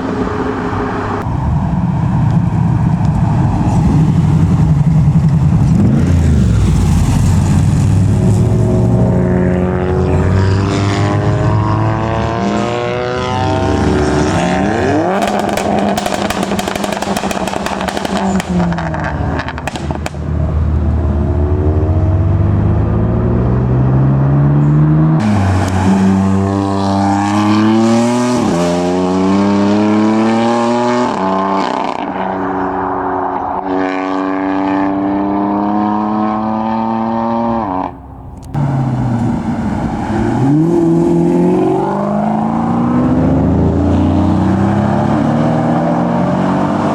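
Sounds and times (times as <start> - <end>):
cars accelerating hard: 0.0 - 46.9
exhaust pops and crackles: 2.1 - 6.3, 15.1 - 20.9.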